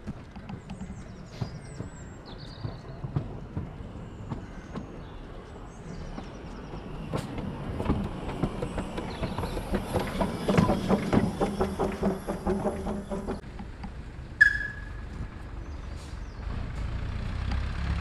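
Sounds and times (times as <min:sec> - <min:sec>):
locomotive wheels clicking over joints: 0:00.0 - 0:15.6
bird chirps: 0:14.4 - 0:16.5.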